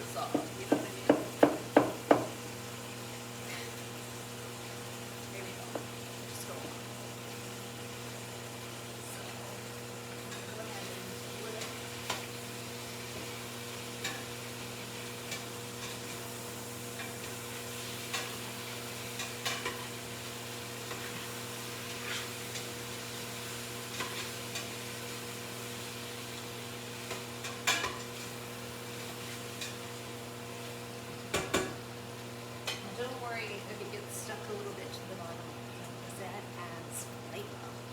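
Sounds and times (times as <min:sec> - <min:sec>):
food sizzling in a pot: 0:00.0 - 0:37.9.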